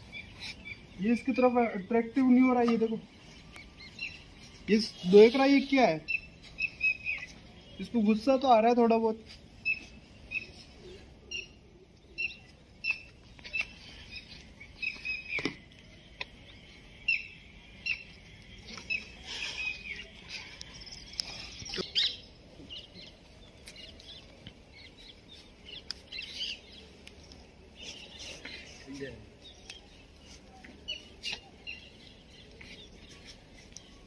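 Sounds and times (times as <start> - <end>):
small birds chirping: 0.0 - 34.0
rustling noise: 30.0 - 34.0.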